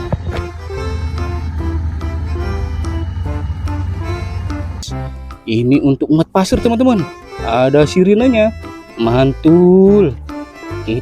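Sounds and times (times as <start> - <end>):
plucked string melody: 0.0 - 11.0
steady low bass: 0.0 - 11.0.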